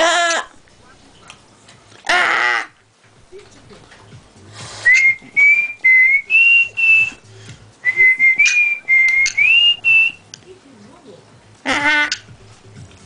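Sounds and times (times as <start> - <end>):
person whistling a tune: 4.8 - 7.2, 7.8 - 10.2.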